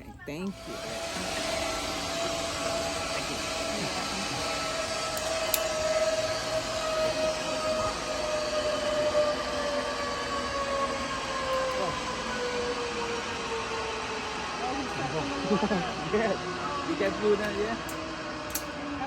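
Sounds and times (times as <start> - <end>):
pulley wheels whining on cable: 0.0 - 19.0.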